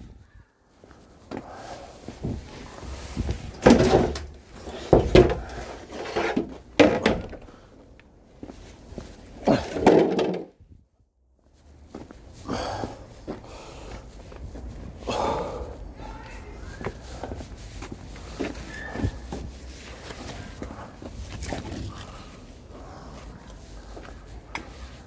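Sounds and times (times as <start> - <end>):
knocks and thuds of objects handled: 3.4 - 7.5, 9.6 - 10.5
door or lid shutting: 3.5 - 7.5.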